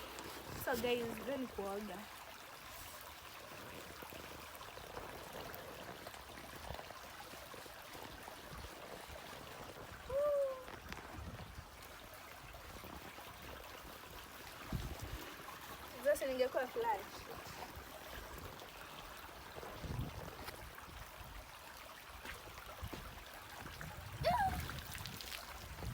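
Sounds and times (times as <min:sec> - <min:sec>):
river water flowing: 0:00.0 - 0:25.9
person exclaiming: 0:10.1 - 0:10.7, 0:24.2 - 0:24.7.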